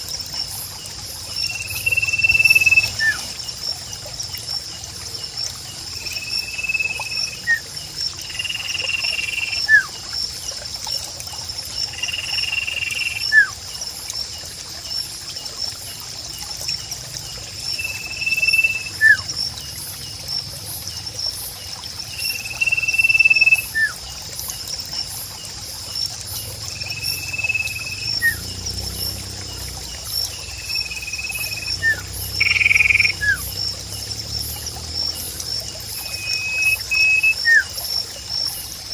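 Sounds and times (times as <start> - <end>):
high trill of insects or frogs: 0.0 - 38.9
trickling water: 0.0 - 38.9
bird whistling call: 1.8 - 3.2, 6.5 - 7.6, 13.1 - 13.5, 17.8 - 19.2, 22.6 - 24.0, 27.0 - 28.4, 30.7 - 33.5, 36.0 - 37.7.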